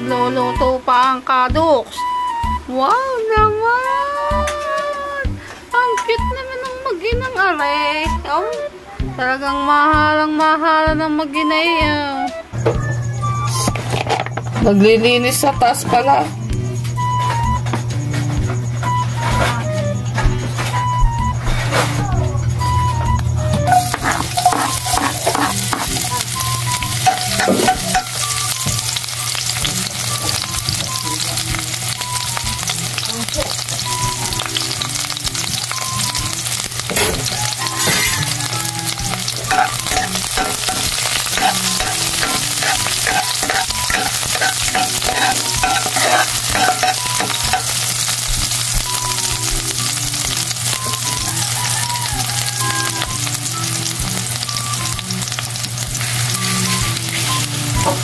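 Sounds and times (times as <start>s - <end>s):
onion and garlic sizzling in oil: 22.4s - 58.0s.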